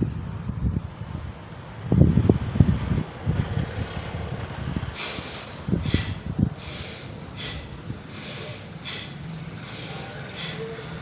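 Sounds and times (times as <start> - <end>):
person exhaling sharply through nose: 4.9 - 10.8.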